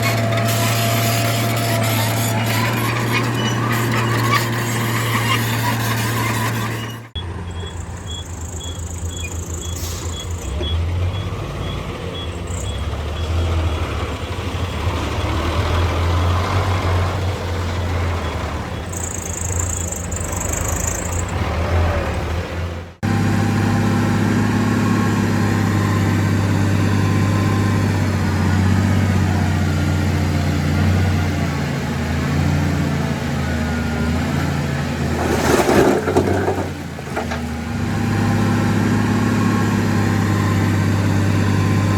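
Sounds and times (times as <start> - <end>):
heavy diesel engines humming: 0.0 - 41.9
faint high beeps: 7.2 - 13.4.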